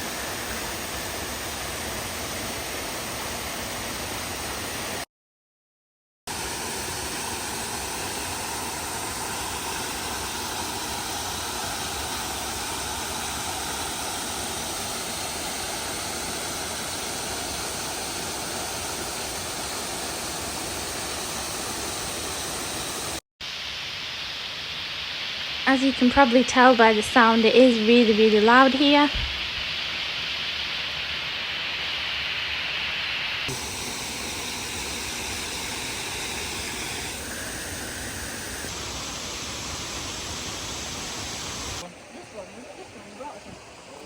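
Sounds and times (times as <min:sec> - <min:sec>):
waterfall rushing: 0:06.3 - 0:23.2, 0:28.5 - 0:44.0.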